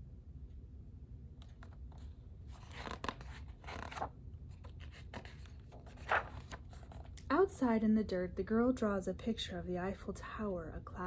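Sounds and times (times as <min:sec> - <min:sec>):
book pages rustling and turning: 0:01.4 - 0:07.2.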